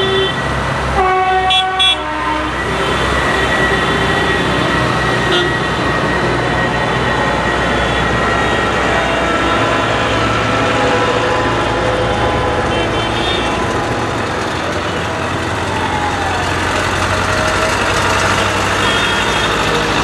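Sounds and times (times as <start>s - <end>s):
tractor engines running: 0.0s - 20.0s
horn toots: 1.0s - 5.7s, 18.4s - 20.0s.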